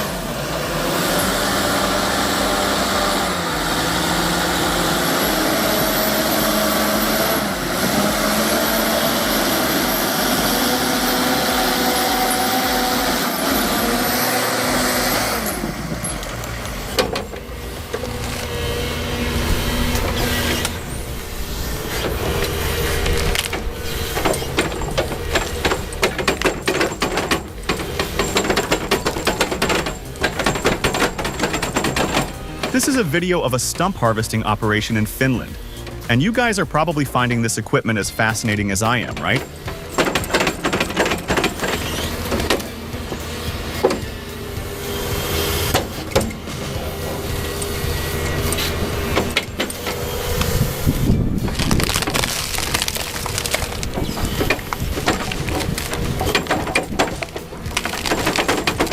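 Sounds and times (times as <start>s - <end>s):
heavy machine engine running: 0.0s - 58.9s
irregular clattering and knocking: 21.8s - 33.1s, 38.9s - 50.8s, 51.4s - 58.9s.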